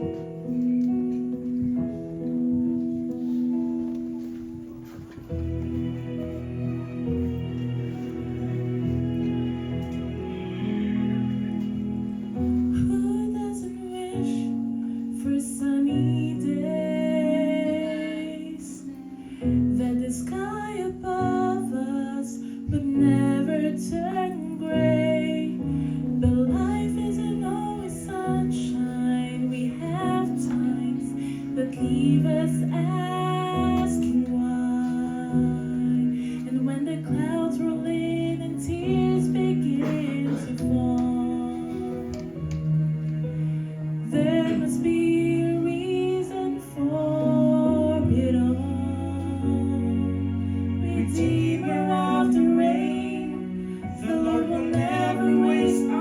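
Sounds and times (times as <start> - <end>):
woman singing gospel song: 12.7 - 42.4, 44.0 - 50.2, 50.8 - 56.0.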